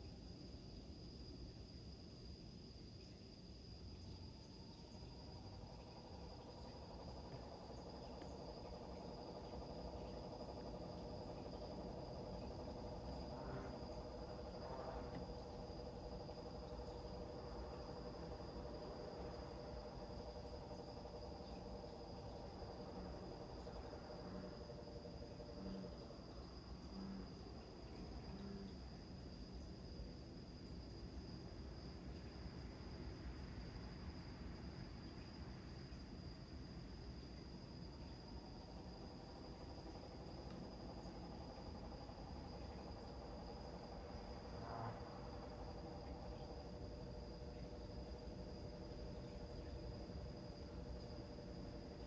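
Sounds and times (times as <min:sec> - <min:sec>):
crickets trilling: 0:00.0 - 0:52.0
bullfrogs calling: 0:05.6 - 0:28.8.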